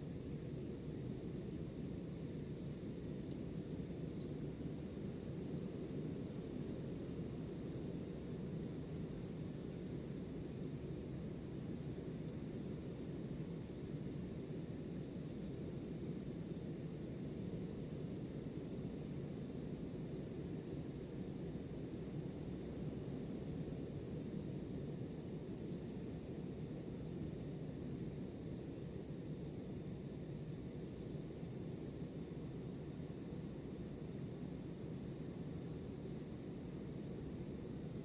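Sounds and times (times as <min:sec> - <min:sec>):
small birds chirping: 0:00.0 - 0:01.6, 0:02.2 - 0:04.4, 0:05.6 - 0:07.8, 0:09.1 - 0:09.5, 0:11.2 - 0:14.1, 0:15.4 - 0:15.7, 0:21.3 - 0:23.4, 0:24.0 - 0:27.5, 0:28.1 - 0:29.3, 0:29.9 - 0:31.6, 0:32.2 - 0:34.2, 0:35.3 - 0:36.4.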